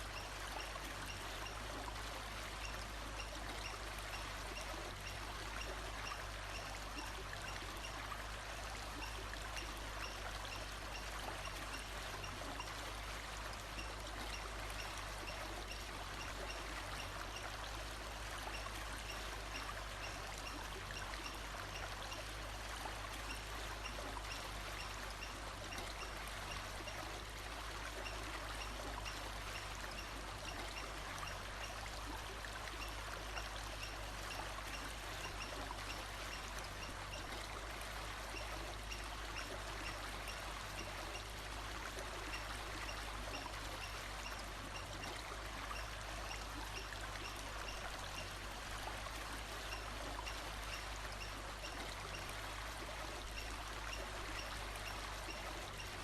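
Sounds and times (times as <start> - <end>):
flowing stream: 0.0 - 56.0.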